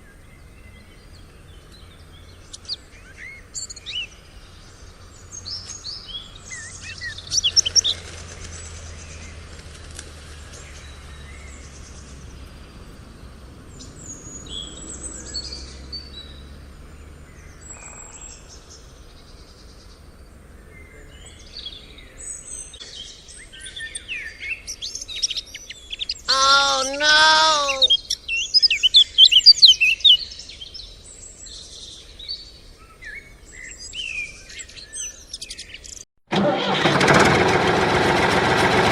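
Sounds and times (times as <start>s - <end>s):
birds chirping: 20.9s - 30.0s
bird wavering cry: 26.3s - 28.1s.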